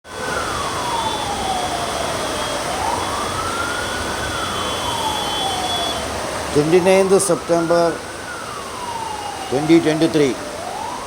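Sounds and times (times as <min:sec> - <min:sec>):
heavy rain hissing: 0:00.1 - 0:11.0
siren wailing: 0:00.1 - 0:11.0.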